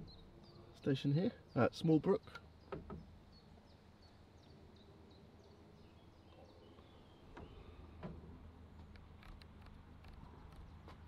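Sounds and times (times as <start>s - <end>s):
small bird chirping: 0.0s - 7.8s.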